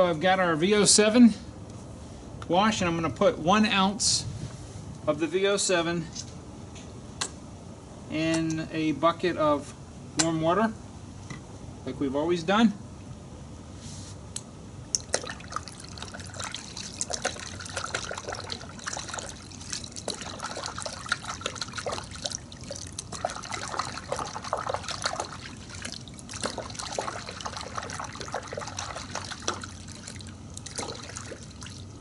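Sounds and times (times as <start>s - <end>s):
water trickling and splashing in bucket: 15.0s - 32.0s.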